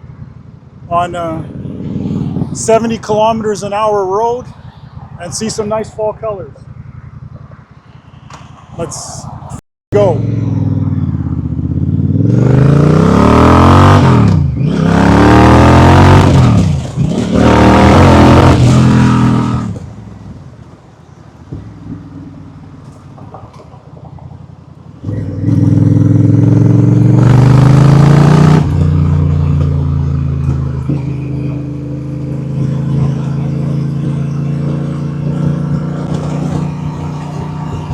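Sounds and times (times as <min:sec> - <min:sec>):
wind noise on microphone: 0:00.0 - 0:03.5, 0:32.3 - 0:37.9
motorcycle engine accelerating: 0:00.8 - 0:02.7, 0:10.0 - 0:20.0, 0:25.0 - 0:37.9.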